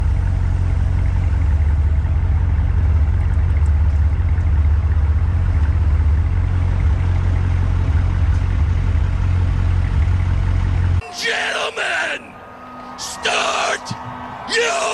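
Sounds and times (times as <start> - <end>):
truck engine droning: 0.0 - 14.9.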